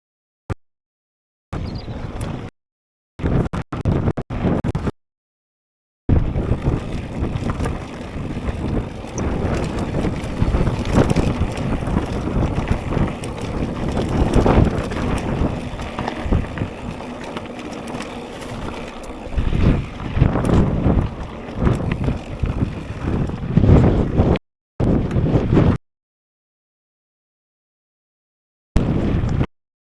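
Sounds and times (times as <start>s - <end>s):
wind buffeting microphone: 1.6s - 2.5s, 6.1s - 25.8s
bike rattling over trail: 6.1s - 24.4s.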